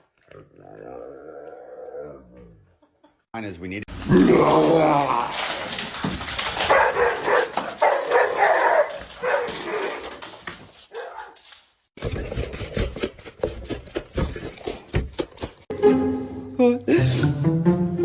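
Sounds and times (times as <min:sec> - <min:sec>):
dog barking and yowling: 0:06.6 - 0:10.1, 0:10.9 - 0:11.4.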